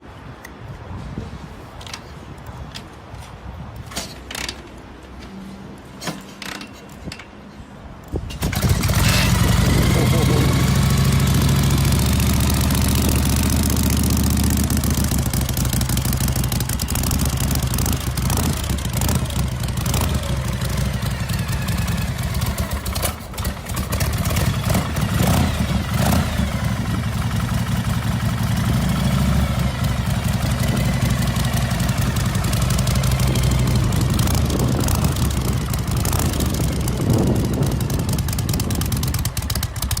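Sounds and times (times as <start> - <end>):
motorcycle engine rumbling: 8.2 - 40.0.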